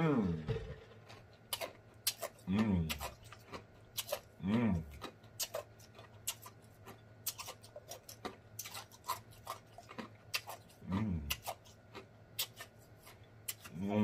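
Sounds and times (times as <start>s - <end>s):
person humming mmm: 0.0s - 0.9s, 2.5s - 3.0s, 10.8s - 11.4s
wet chewing and lip smacks: 4.9s - 13.8s.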